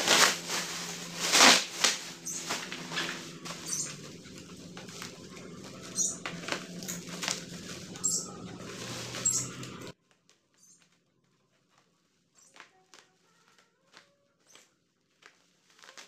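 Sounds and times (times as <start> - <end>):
steady low hum: 0.0 - 10.0
plastic packaging crinkling: 0.0 - 16.0.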